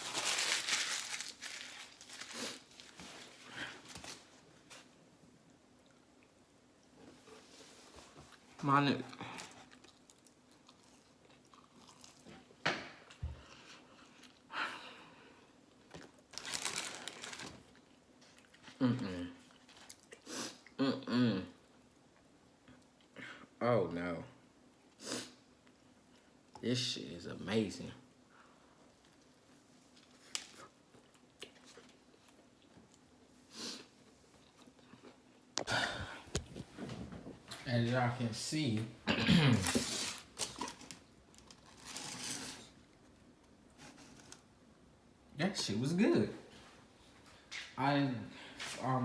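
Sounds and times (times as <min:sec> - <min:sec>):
crunchy chewing of sandwich: 0:09.1 - 0:14.5, 0:15.6 - 0:20.7, 0:28.6 - 0:36.8
person chewing food: 0:09.2 - 0:14.5, 0:30.5 - 0:33.3.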